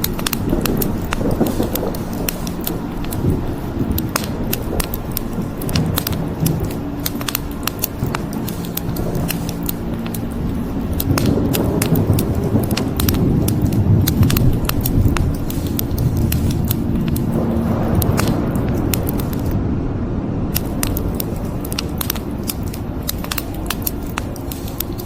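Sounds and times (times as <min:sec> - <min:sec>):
wood fire crackling: 0:00.0 - 0:19.6, 0:20.5 - 0:25.0
low steady rumble: 0:00.0 - 0:25.0.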